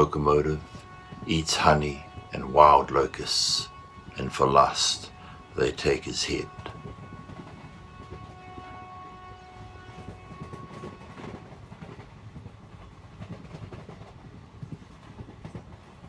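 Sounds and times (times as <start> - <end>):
train horn chord: 0.0 - 12.0
train rumbling: 0.0 - 16.0
rail clatter: 9.8 - 16.0.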